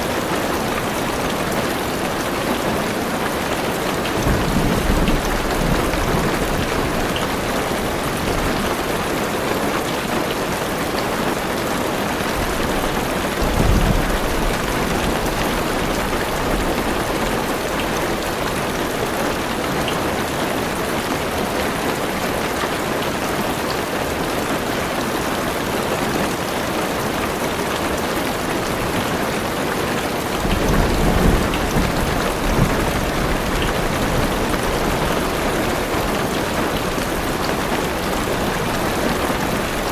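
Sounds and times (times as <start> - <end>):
heavy rain on car roof: 0.0 - 39.9
low thunder rumbles: 4.2 - 8.8, 12.5 - 18.2, 30.3 - 39.9.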